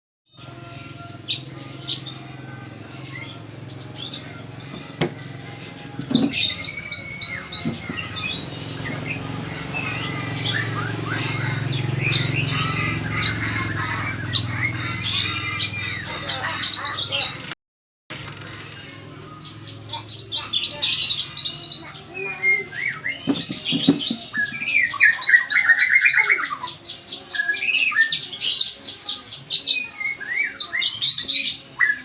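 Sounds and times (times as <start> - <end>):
bird chirping and trilling: 0.7 - 17.5, 18.2 - 32.0.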